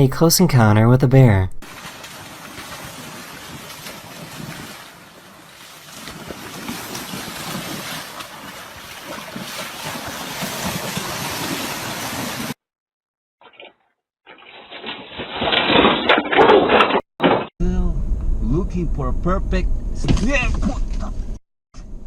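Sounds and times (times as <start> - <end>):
water noise: 1.6 - 12.6, 13.4 - 17.4.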